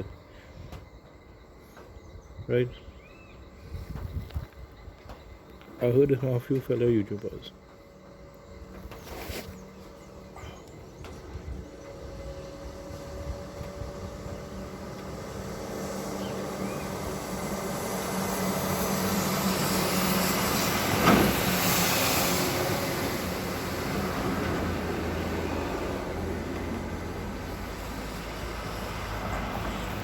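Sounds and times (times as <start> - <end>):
vehicle passing by: 11.8 - 30.0.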